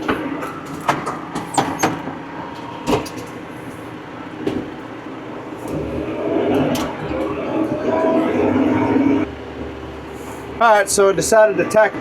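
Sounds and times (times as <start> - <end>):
clunks and rattles: 0.0 - 3.4, 4.4 - 4.9, 5.5 - 7.9.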